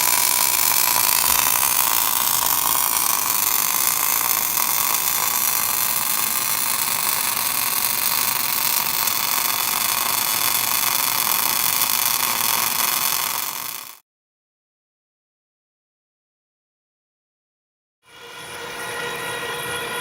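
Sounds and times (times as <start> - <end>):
machine hissing with high tones: 0.0 - 14.0.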